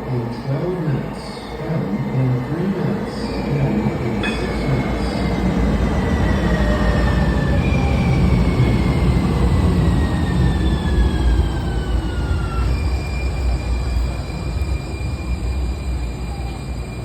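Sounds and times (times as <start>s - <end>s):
light rail car rumble: 0.0s - 17.0s
steady high tone: 3.3s - 6.6s.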